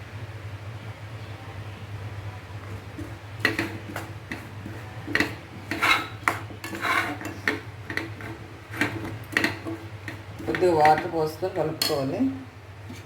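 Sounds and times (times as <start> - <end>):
utensil clinking against mixing bowl: 2.6 - 12.2.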